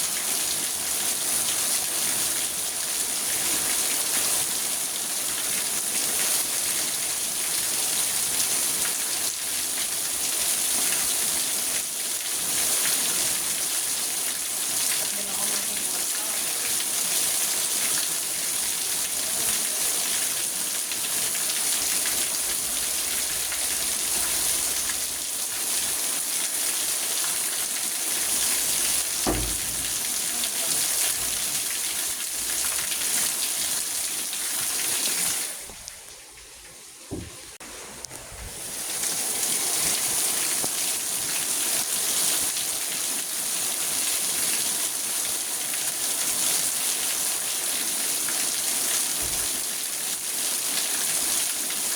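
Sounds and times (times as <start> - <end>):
rain on a car: 0.0 - 36.5, 38.1 - 51.9
soft low thumps: 29.2 - 30.4.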